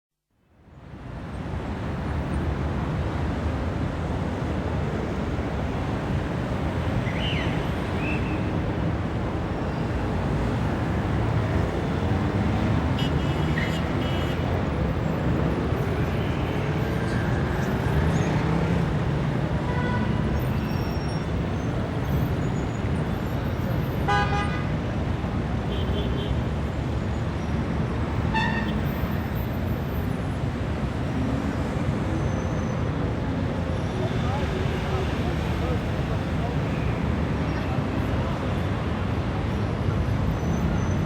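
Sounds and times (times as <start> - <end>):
dense city traffic: 0.3 - 41.0
vehicles accelerating: 7.4 - 23.8.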